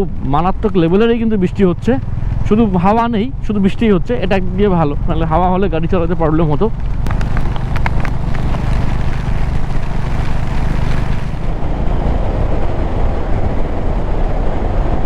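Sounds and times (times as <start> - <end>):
wind rushing on microphone: 6.8 - 15.0
motorcycle engine running: 7.0 - 13.3
heavy rain on microphone: 7.0 - 13.7.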